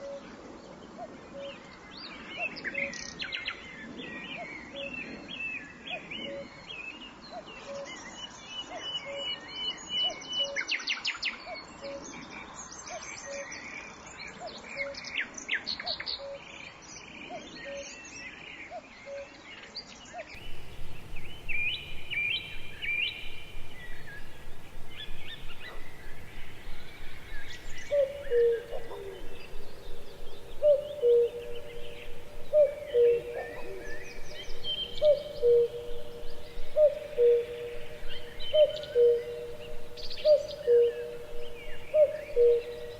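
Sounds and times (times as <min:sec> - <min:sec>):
wild birds chirping and trilling: 0:16.1 - 0:42.9.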